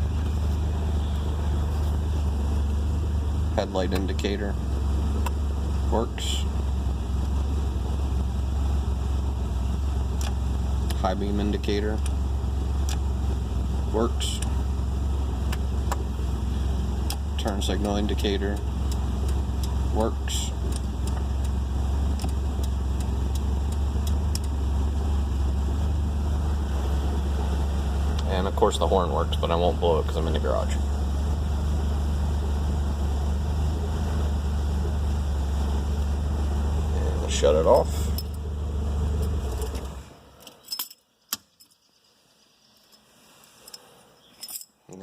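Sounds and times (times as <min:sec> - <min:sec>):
car engine idling: 0:00.0 - 0:40.4
turn signal flasher clicking: 0:05.2 - 0:05.4, 0:10.1 - 0:11.0, 0:12.0 - 0:12.2, 0:12.8 - 0:13.1, 0:15.4 - 0:16.1, 0:16.9 - 0:19.9, 0:20.6 - 0:24.6
keys clinking in ignition: 0:39.2 - 0:41.9, 0:43.6 - 0:44.8.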